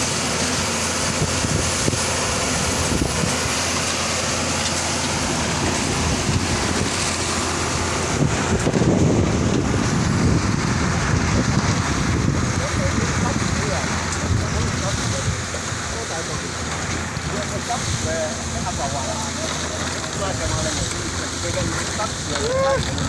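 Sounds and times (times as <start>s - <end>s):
concrete mixer pump engine drone: 0.0s - 23.0s.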